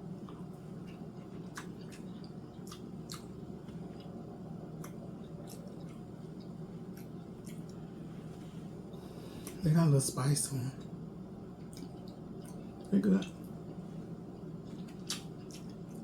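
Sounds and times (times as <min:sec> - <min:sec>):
steady low hum: 0:00.0 - 0:16.0
person chewing wetly: 0:00.2 - 0:07.9, 0:11.6 - 0:13.5, 0:14.6 - 0:16.0.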